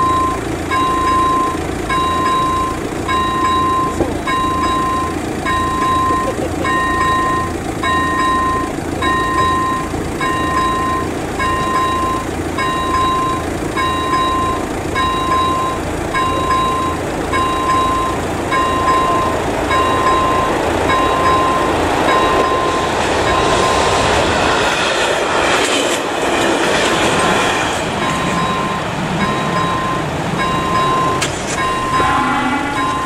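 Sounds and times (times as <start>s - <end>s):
crossing warning bell ringing: 0.0s - 33.0s
train wheels on rails: 0.0s - 33.0s.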